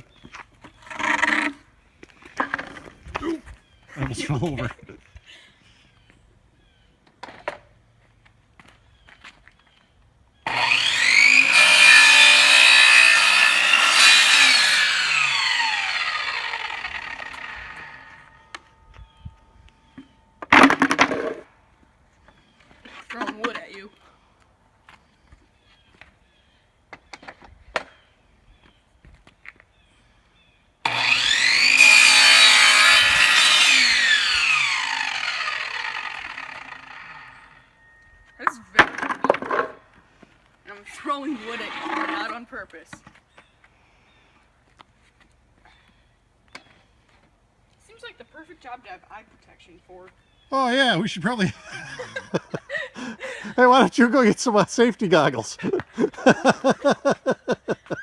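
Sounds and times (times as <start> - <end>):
electric chop saw cutting board: 10.5 - 18.7, 30.9 - 37.7, 41.2 - 42.4.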